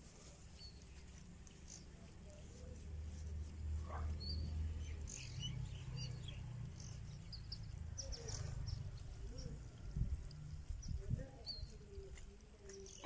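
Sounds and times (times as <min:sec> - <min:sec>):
birds chirping: 0:03.8 - 0:13.0.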